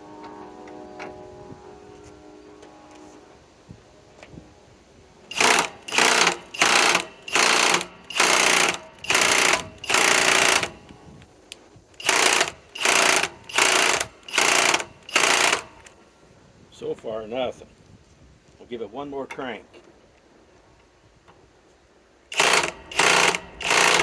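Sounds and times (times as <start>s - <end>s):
impact driver hammering: 5.3s - 10.9s, 12.0s - 15.9s, 22.3s - 24.0s.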